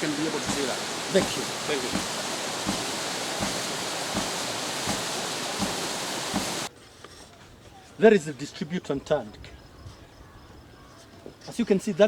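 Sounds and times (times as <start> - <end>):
pump valve knocking: 0.0 - 6.7
rushing water: 0.0 - 6.7.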